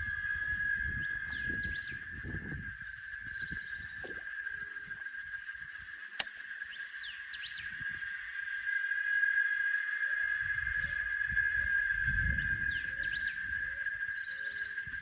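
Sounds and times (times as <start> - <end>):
bird whistles: 0.0 - 4.2
high-pitched insect chorus: 0.0 - 15.0
sharp click: 6.2 - 6.5.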